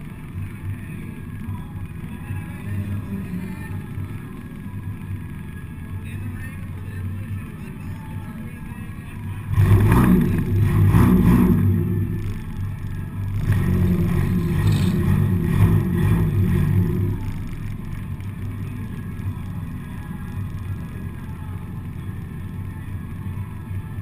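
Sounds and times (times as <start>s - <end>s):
car engine revving: 2.0s - 4.7s, 9.4s - 24.0s.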